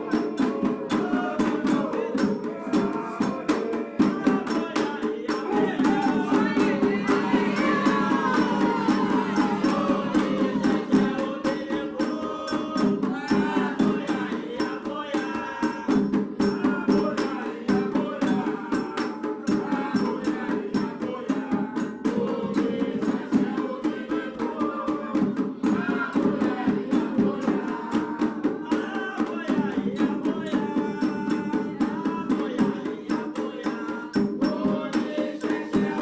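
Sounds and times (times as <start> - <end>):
rattling percussion: 0.0 - 24.4
fast hand-drumming: 0.0 - 36.0
people singing: 0.0 - 36.0.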